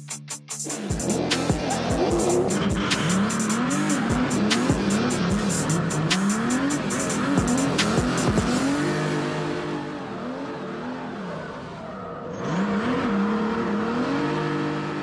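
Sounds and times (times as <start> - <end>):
music: 0.0 - 9.8
car engine revving: 0.2 - 15.0.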